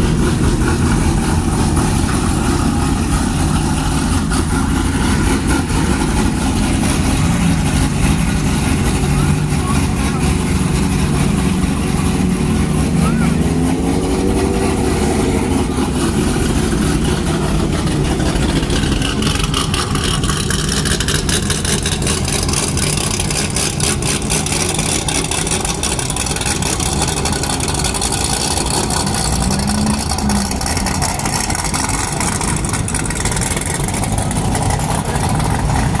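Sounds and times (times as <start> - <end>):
car engine rumbling: 0.0 - 36.0.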